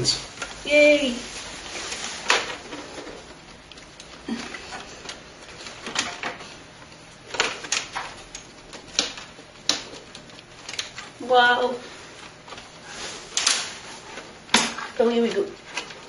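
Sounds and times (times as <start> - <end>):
computer parts rattling: 1.8 - 11.5.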